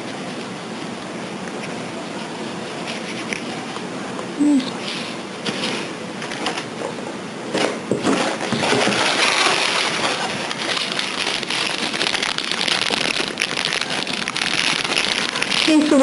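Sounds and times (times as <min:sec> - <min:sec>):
plastic packaging crinkling: 0:08.0 - 0:16.0.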